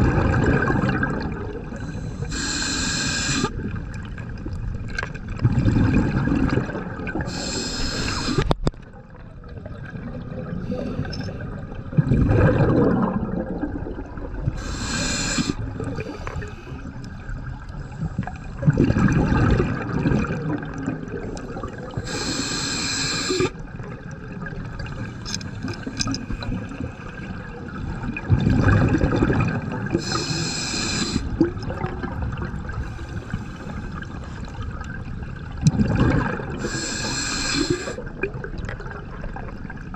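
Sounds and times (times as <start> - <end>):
exhaled bubbles gurgling: 0.0 - 39.9
regulator inhale hiss: 1.8 - 3.6, 7.3 - 8.6, 10.6 - 11.4, 14.6 - 17.0, 21.8 - 23.6, 30.0 - 31.4, 32.8 - 34.4, 36.6 - 38.0.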